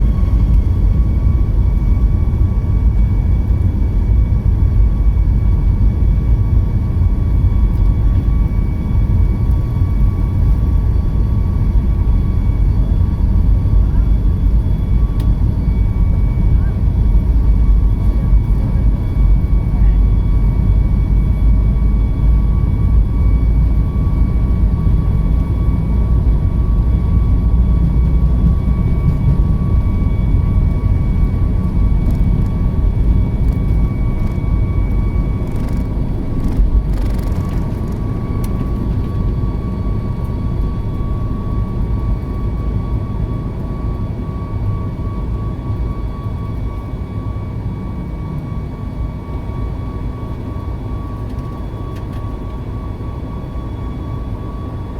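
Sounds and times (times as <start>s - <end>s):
jet engine high whine: 0.0s - 54.9s
jet engine low rumble: 0.0s - 54.9s.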